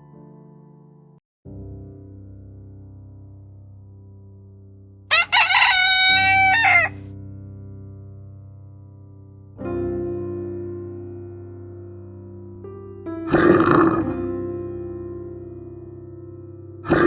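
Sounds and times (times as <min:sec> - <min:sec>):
soft background music: 0:00.0 - 0:17.0
rooster crowing: 0:05.1 - 0:07.0.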